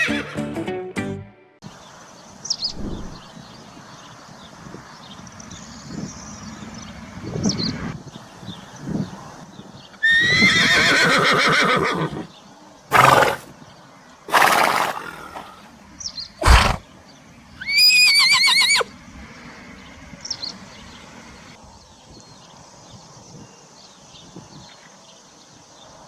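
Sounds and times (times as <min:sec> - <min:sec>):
horse neighing: 0:10.0 - 0:12.3, 0:12.9 - 0:13.5, 0:14.3 - 0:15.6, 0:16.4 - 0:16.8, 0:17.6 - 0:18.9
horse blowing: 0:12.9 - 0:13.5, 0:14.3 - 0:15.4, 0:16.4 - 0:16.8.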